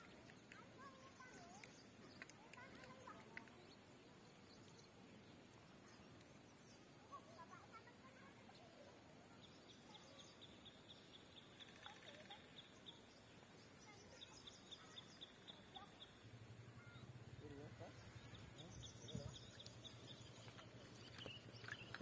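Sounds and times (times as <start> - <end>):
lakeside ambience: 0.0 - 22.0
bird chirping: 9.3 - 22.0.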